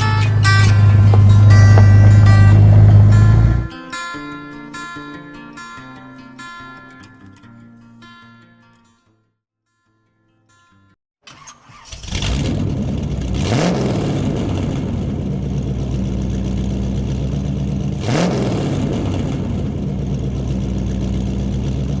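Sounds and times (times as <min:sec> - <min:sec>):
car engine idling: 0:00.0 - 0:03.7, 0:11.3 - 0:22.0.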